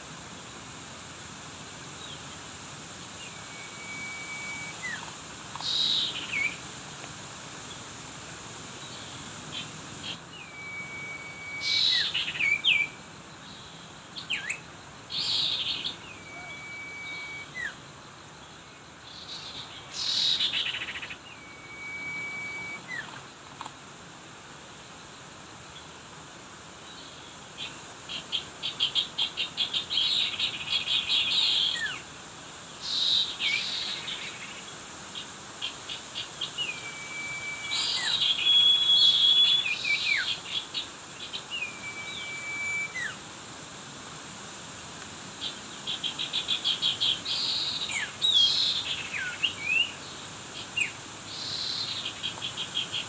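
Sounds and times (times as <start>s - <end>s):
bird whistles with falling note: 3.4s - 5.0s, 10.5s - 12.1s, 16.2s - 17.7s, 21.4s - 23.0s, 36.7s - 40.2s, 41.6s - 43.1s.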